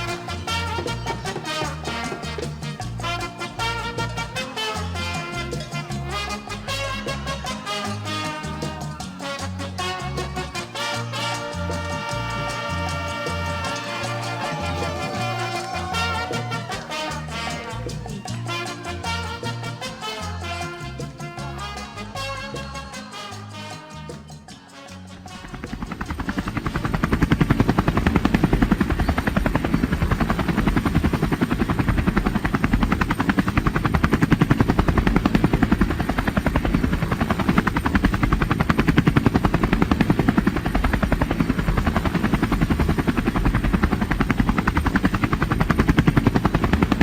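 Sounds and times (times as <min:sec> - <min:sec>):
helicopter rotor chopping: 0:13.9 - 0:17.1, 0:25.6 - 0:47.0.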